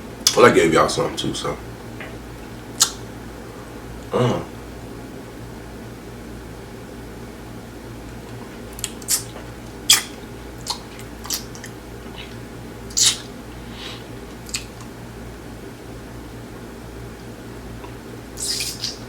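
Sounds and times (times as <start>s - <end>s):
steady low hum: 0.0s - 19.0s
crunching and chewing taco: 8.2s - 15.0s, 17.2s - 19.0s.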